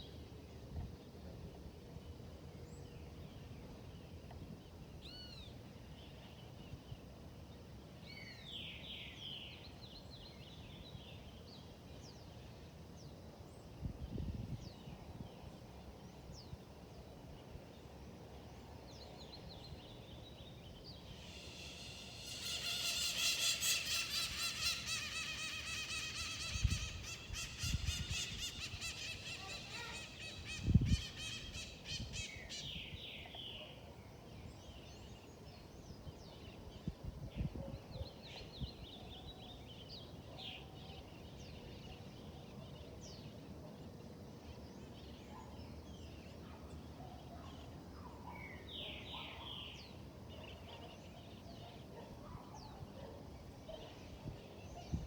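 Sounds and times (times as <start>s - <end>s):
wild birds calling: 21.0s - 32.8s
loud rapidly pulsing bird call: 21.2s - 32.1s.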